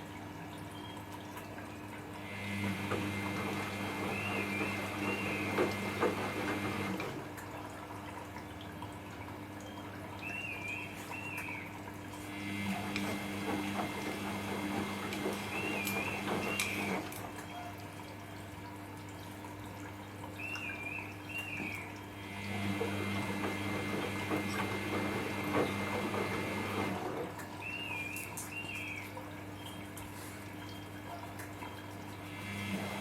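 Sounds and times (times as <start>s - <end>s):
motor humming: 2.2s - 7.3s, 10.4s - 17.5s, 20.4s - 28.8s, 32.3s - 33.0s.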